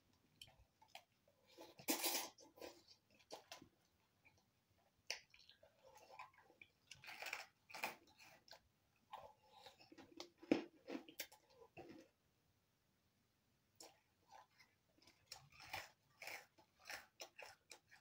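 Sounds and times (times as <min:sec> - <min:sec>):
chewing and mouth noises: 0:00.3 - 0:10.4, 0:13.8 - 0:18.0.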